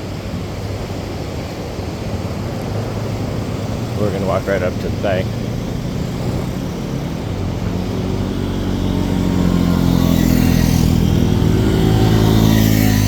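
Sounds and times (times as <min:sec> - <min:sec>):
atv engine approaching: 0:00.0 - 0:13.0.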